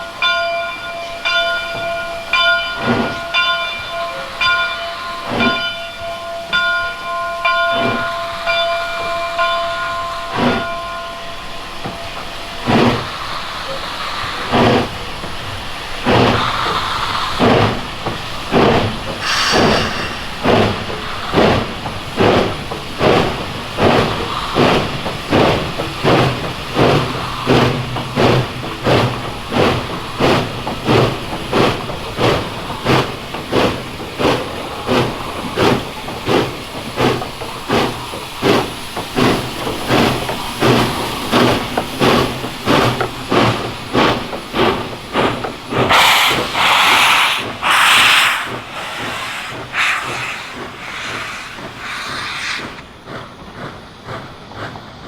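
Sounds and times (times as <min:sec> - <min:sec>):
steam locomotive chuffing: 0:00.0 - 0:55.0
steam hiss: 0:01.5 - 0:55.0.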